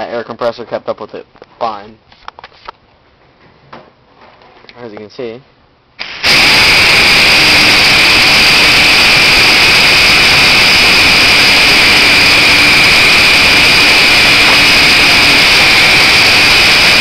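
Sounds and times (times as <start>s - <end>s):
pneumatic sander hissing and whirring: 6.0s - 17.0s.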